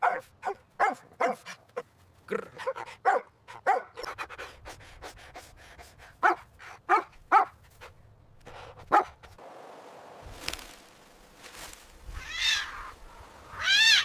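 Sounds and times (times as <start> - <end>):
dog barking: 0.0 - 1.6, 2.6 - 4.1, 6.2 - 7.6, 8.9 - 9.2.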